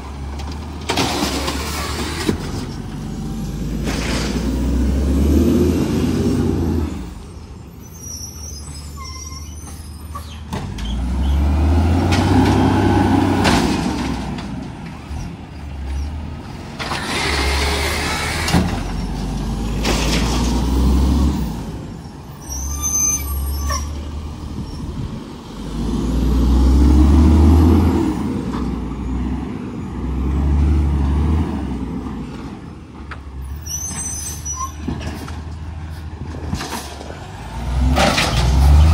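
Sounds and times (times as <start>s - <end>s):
truck engine revving: 0.0s - 7.3s, 10.5s - 22.0s, 23.9s - 32.5s, 37.1s - 38.9s
high squeal: 7.6s - 11.4s, 22.0s - 24.0s, 33.5s - 34.8s.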